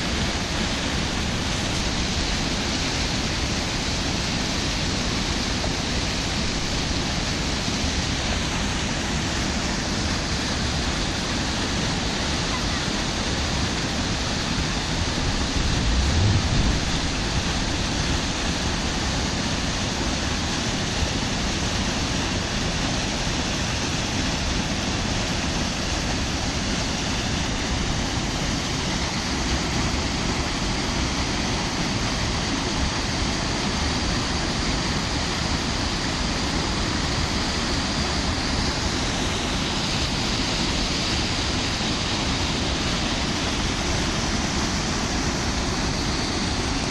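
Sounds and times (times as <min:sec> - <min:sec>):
water rushing: 0:00.0 - 0:46.9
low rumble: 0:15.5 - 0:18.4.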